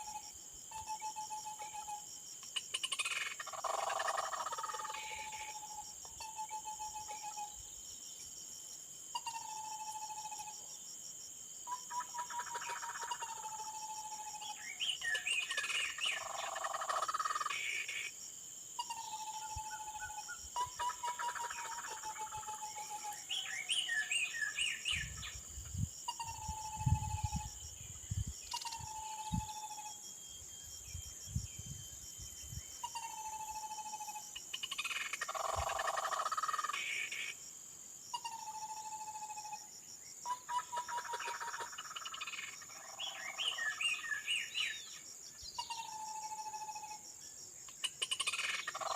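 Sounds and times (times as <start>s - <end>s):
high insect drone: 0.0s - 48.9s.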